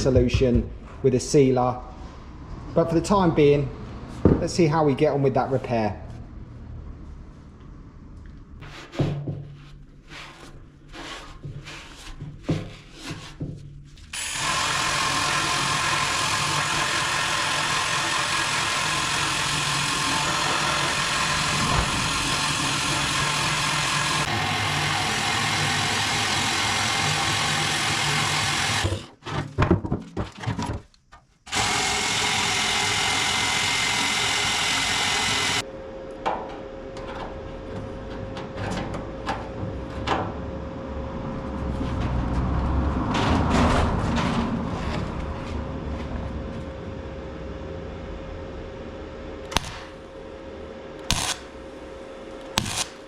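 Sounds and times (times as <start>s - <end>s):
power tool on steel tank: 14.1s - 29.2s, 31.5s - 35.6s, 51.0s - 51.5s, 52.5s - 53.0s
steady low hum: 35.0s - 53.0s.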